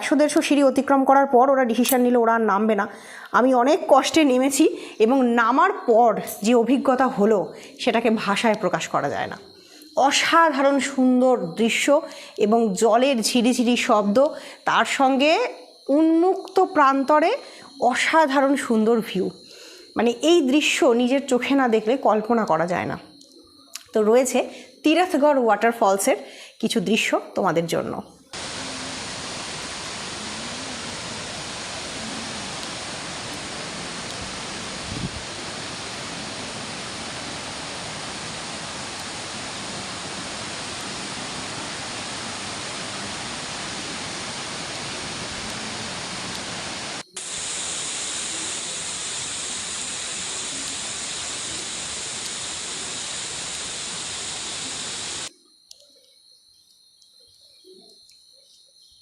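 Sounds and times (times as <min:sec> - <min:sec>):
waterfall rushing: 0:28.4 - 0:55.3.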